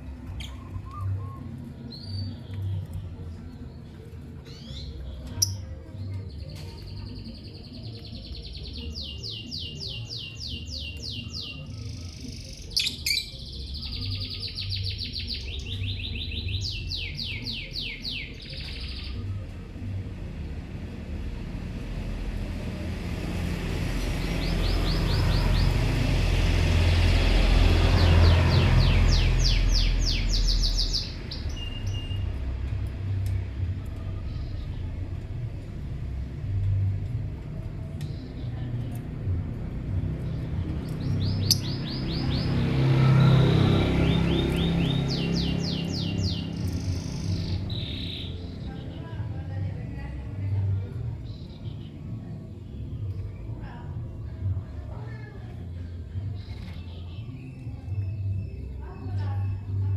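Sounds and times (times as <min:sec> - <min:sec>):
lovebirds chirping: 0:00.0 - 0:19.5, 0:27.5 - 0:37.2, 0:37.8 - 0:49.4.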